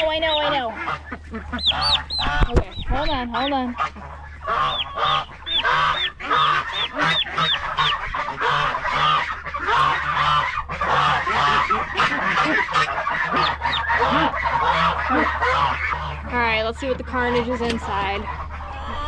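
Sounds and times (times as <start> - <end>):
geese honking: 0.0 - 19.0
steady low hum: 0.0 - 19.0.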